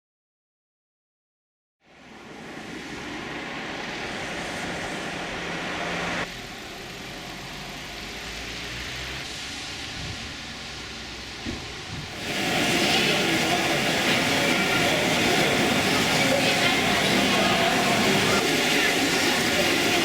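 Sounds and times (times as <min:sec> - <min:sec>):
model trains running: 0:01.9 - 0:20.0.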